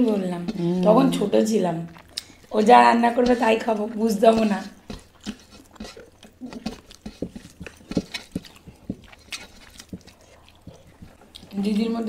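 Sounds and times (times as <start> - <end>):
people chewing wetly: 0.0 - 12.0
lip smacks: 1.8 - 2.6, 4.8 - 11.6.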